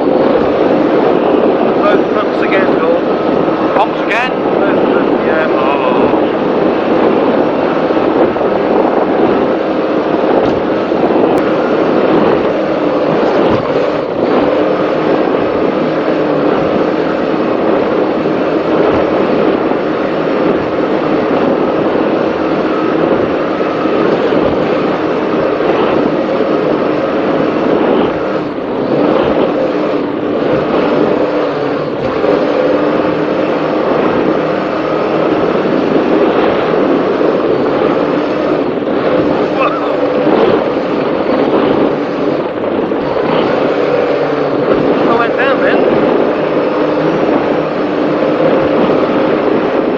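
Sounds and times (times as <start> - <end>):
powerboat engines droning: 0.0 - 49.9
wind and water rushing: 0.0 - 49.9.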